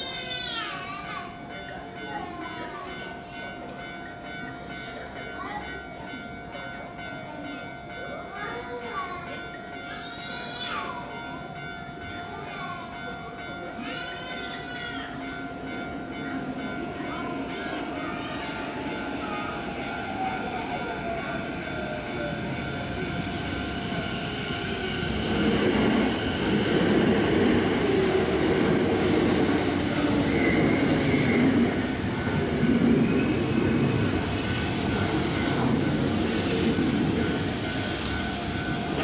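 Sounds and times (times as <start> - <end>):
electric train rumbling: 0.0 - 39.0
train wheel squeal: 18.2 - 39.0.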